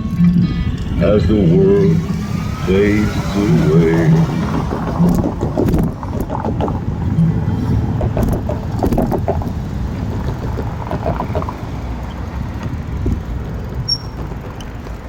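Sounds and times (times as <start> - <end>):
rumbling road noise: 0.0 - 15.0
wind buffeting microphone: 0.0 - 15.0
small knocks and rattles: 4.2 - 15.0.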